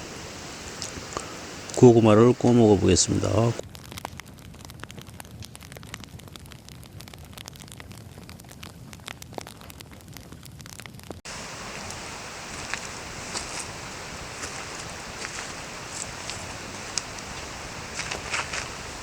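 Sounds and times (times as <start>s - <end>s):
steady hiss: 0.0s - 3.6s, 11.3s - 19.0s
campfire crackling and popping: 0.0s - 19.0s.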